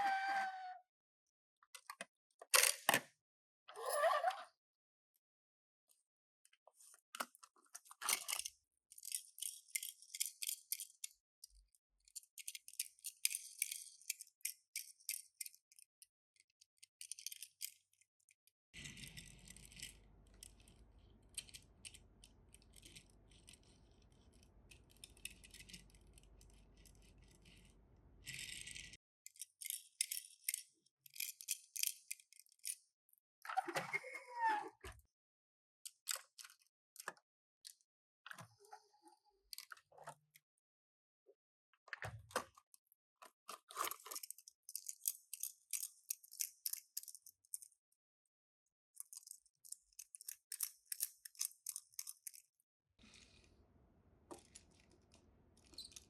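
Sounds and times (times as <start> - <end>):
brief squeak: 0.0 - 0.8
plastic and cardboard clicks and rattles: 1.8 - 3.1, 7.0 - 32.8, 35.8 - 38.5, 41.9 - 47.8, 49.0 - 53.5, 54.3 - 56.0.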